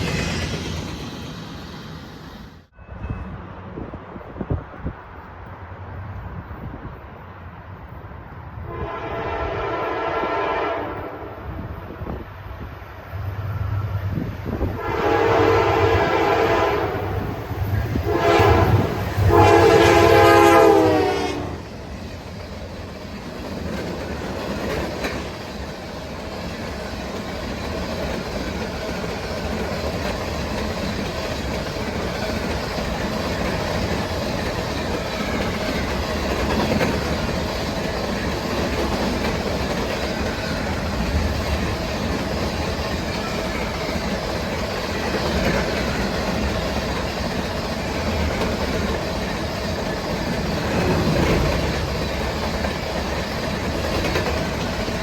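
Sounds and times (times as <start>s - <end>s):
train cars rumbling past: 0.0s - 55.0s
locomotive air horn: 8.6s - 11.5s, 14.7s - 17.4s, 18.0s - 21.7s
wheels clacking on rail joints: 21.7s - 55.0s.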